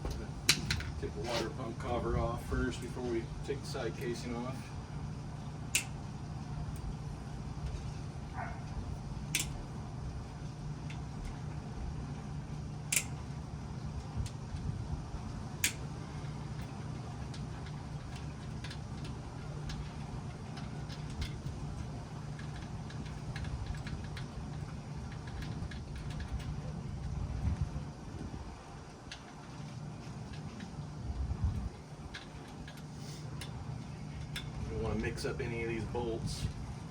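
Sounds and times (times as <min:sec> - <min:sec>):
steady low hum: 0:00.0 - 0:36.9
sharp metallic clicks: 0:05.7 - 0:06.0, 0:09.3 - 0:09.6, 0:12.9 - 0:13.2.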